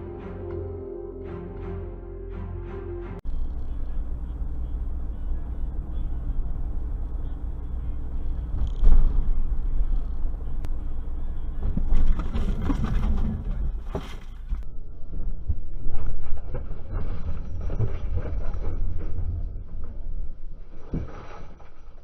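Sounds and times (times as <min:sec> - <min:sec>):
harsh road noise: 0:01.3 - 0:14.6
car engine and road rumble: 0:03.2 - 0:20.9.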